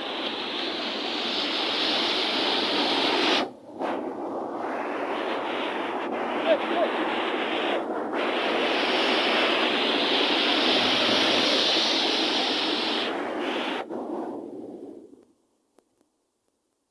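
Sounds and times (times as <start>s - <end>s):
wind: 0.0s - 16.5s
sea surf on shore: 5.5s - 13.5s.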